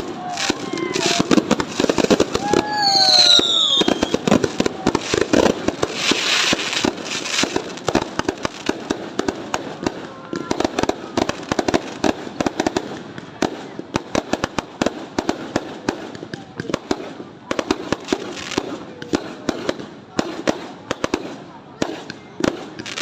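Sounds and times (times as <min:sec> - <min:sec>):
fireworks bangs and crackling pops: 0:00.0 - 0:23.0
fireworks hissing crackle: 0:00.0 - 0:23.0.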